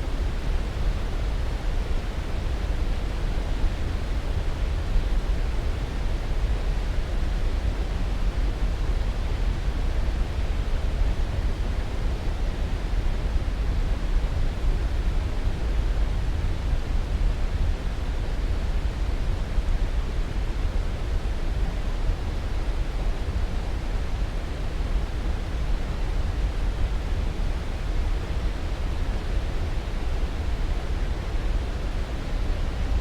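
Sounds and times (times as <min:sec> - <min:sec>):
steady rushing hiss noise: 0:00.0 - 0:09.0.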